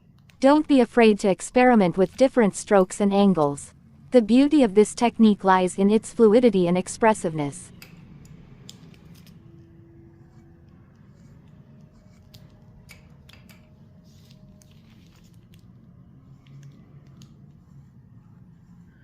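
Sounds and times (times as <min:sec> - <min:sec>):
low steady hum: 0:00.0 - 0:19.0
pen scratching on paper: 0:10.2 - 0:12.6, 0:16.2 - 0:19.0.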